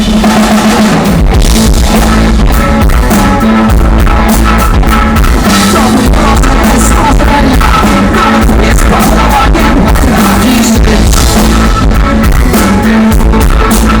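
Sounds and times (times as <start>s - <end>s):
drums beating: 0.0s - 14.0s
live rock band playing: 0.0s - 14.0s
person singing: 5.3s - 14.0s.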